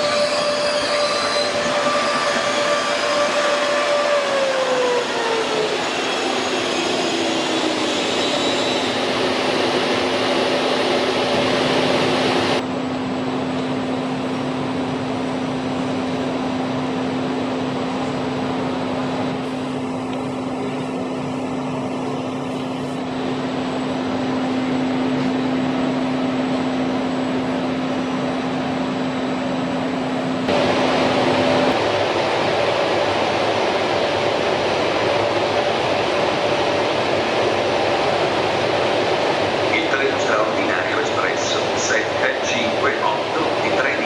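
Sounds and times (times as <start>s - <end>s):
train rushing: 0.0s - 12.7s, 22.0s - 44.0s.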